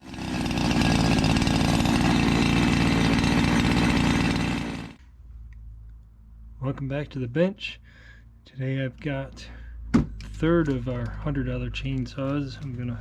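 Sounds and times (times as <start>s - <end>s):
chainsaw engine running hard: 0.0s - 5.0s.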